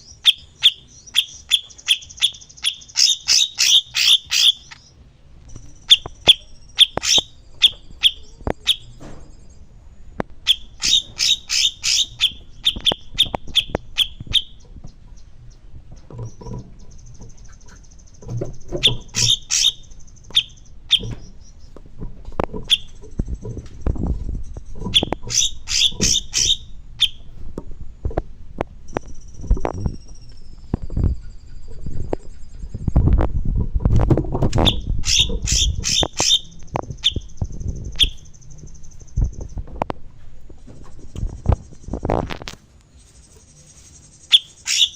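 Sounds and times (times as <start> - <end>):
high thin bird trill: 0.0 - 9.7, 10.4 - 15.3, 16.2 - 21.8, 24.2 - 27.3, 34.6 - 39.6, 42.9 - 44.9
bird singing sharp notes: 0.0 - 9.8, 10.4 - 21.8, 24.2 - 27.3, 34.6 - 39.6.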